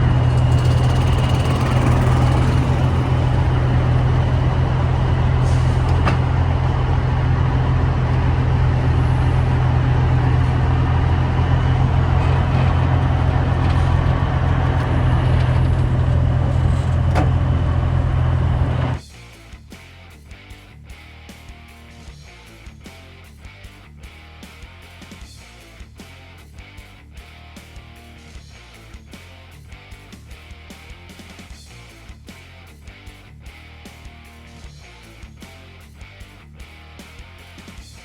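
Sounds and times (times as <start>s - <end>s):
heavy truck engine drone: 0.0s - 19.0s
road or wind noise: 0.0s - 19.0s.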